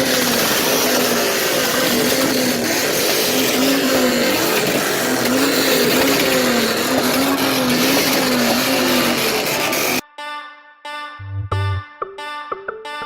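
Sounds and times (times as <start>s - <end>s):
car engine at high revs: 0.0s - 10.0s.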